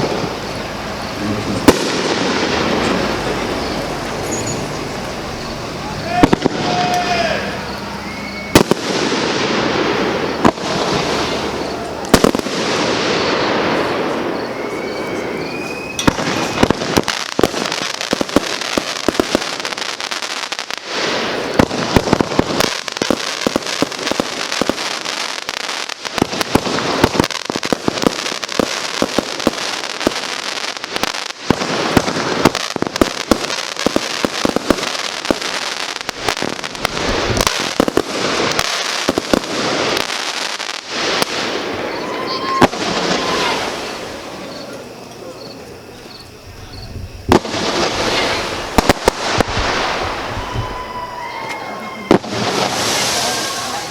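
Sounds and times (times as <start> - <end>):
firework booms: 0.0 - 53.9
rapid crackling firework pops: 1.2 - 3.8, 8.5 - 13.9, 16.0 - 41.6, 47.3 - 50.2.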